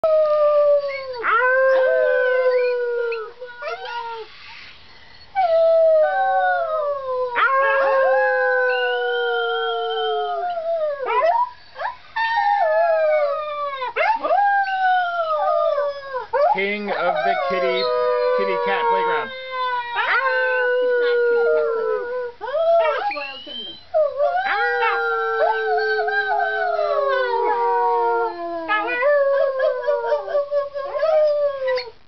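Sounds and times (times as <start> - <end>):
wolf pup howling: 0.0 - 4.3, 5.9 - 11.4, 12.3 - 31.9.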